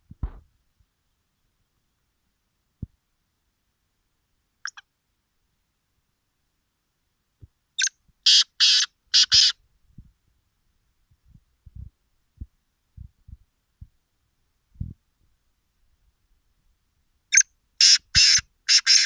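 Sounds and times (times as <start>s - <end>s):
faint low knocks: 0.0s - 0.5s
francolin calling: 4.6s - 4.9s, 7.8s - 9.6s, 17.3s - 19.0s.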